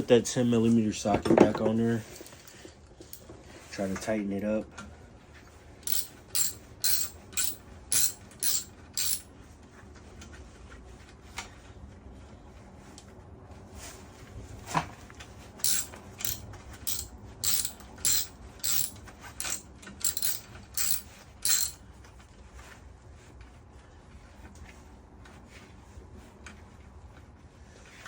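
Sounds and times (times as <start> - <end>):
ratchet wrench clicking: 5.8 - 9.2, 15.6 - 21.8.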